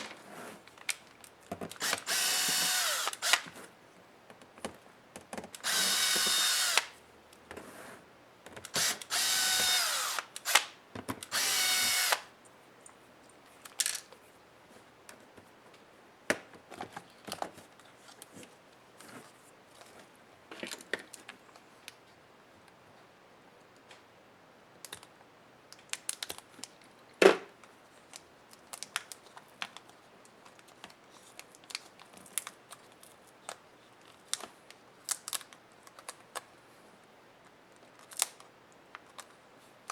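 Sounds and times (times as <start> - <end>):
electric screwdriver whining: 1.8 - 3.5, 5.6 - 6.9, 8.8 - 10.7, 11.3 - 12.3
clicks and rattles of small parts: 13.6 - 14.2.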